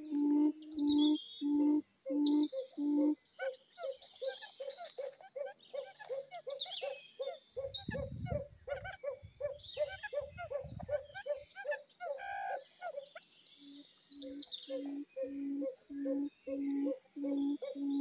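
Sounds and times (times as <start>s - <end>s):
long low bird notes: 0.0s - 3.2s, 14.3s - 18.0s
small birds chirping: 0.0s - 18.0s.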